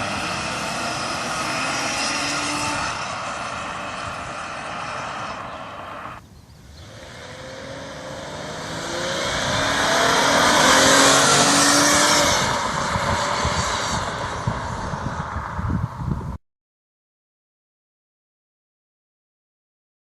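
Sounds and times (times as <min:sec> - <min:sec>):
loud car engine accelerating past: 0:00.0 - 0:06.2, 0:06.8 - 0:16.0.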